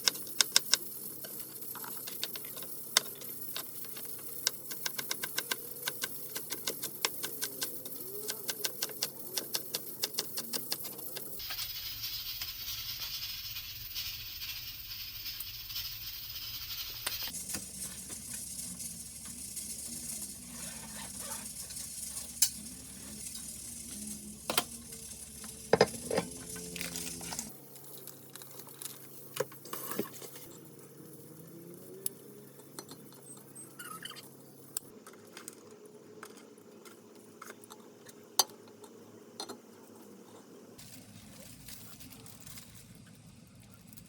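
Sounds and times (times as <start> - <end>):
sizzling hiss: 0.0 - 32.4
utensils clinking and scraping: 14.5 - 30.5.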